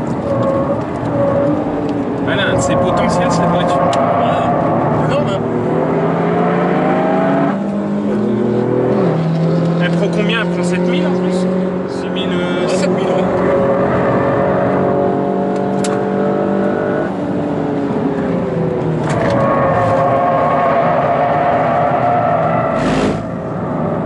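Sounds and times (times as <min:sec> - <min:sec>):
car engine heard from inside: 0:00.0 - 0:13.9
brief rush of noise: 0:22.7 - 0:23.3.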